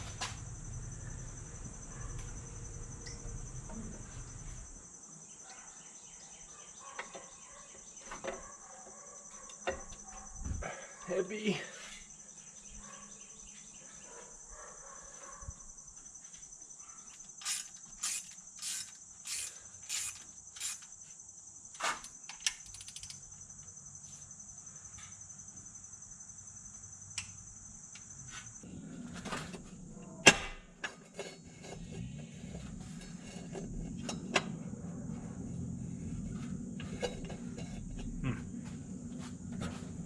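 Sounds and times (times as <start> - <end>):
crickets chirping: 0.0 - 40.0.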